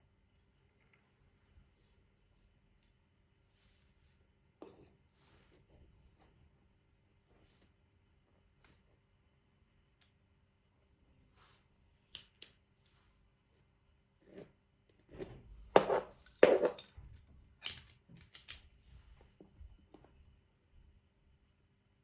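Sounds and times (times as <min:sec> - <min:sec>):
hand tools clicking and knocking: 0:15.8 - 0:16.9, 0:17.6 - 0:18.6.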